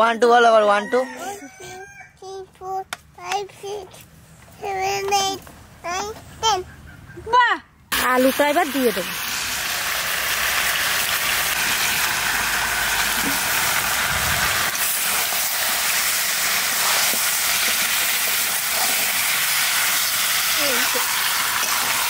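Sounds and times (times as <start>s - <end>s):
food sizzling in hot oil: 7.9s - 22.0s.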